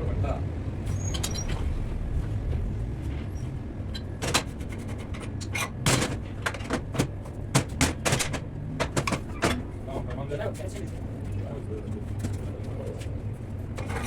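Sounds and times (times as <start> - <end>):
steady low rumble: 0.0 - 5.4
sharp knocks and clicks: 4.0 - 9.7.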